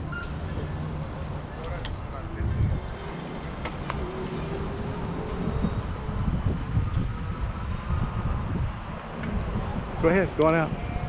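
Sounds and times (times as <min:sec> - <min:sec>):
wind buffeting microphone: 0:00.6 - 0:11.0.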